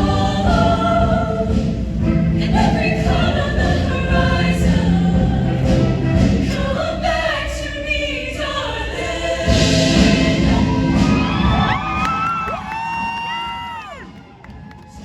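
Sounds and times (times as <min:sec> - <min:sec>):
bass-heavy backing band: 0:00.0 - 0:06.8, 0:09.5 - 0:14.0
choir singing: 0:00.0 - 0:12.0
audience whooping and cheering: 0:10.5 - 0:15.0.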